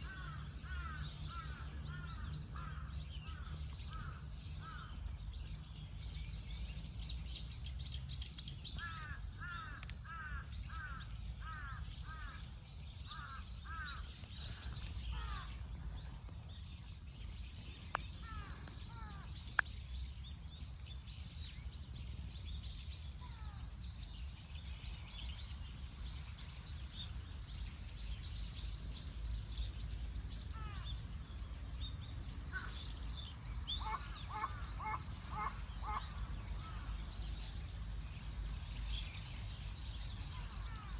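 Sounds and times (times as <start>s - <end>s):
birds calling and chirping: 0.0s - 40.9s.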